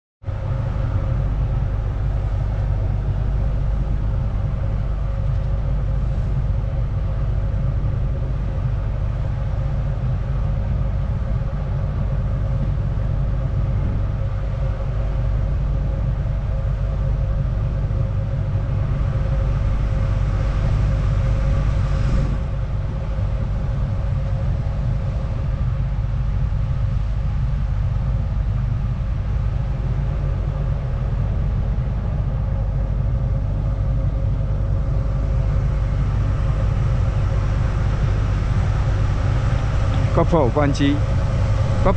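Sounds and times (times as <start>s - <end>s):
ferry engine rumble: 0.3s - 41.9s.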